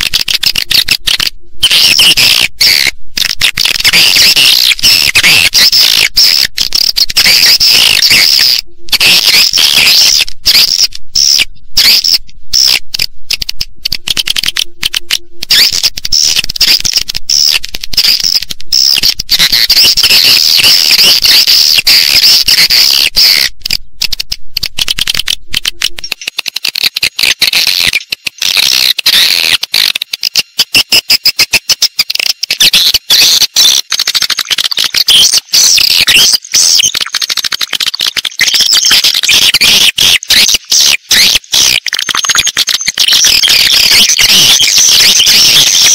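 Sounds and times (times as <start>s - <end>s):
swiftlets twittering: 32.6s - 45.9s.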